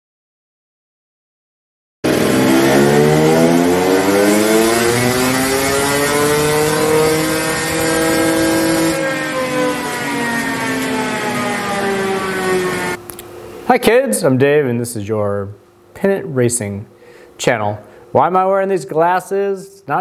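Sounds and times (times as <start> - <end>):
dirt bike engine revving: 2.0 - 13.0.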